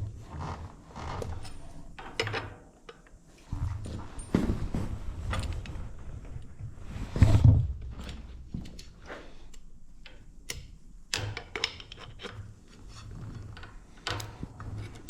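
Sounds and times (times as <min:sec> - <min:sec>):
clicks and knocks of parts: 0:08.0 - 0:12.6, 0:13.6 - 0:15.0.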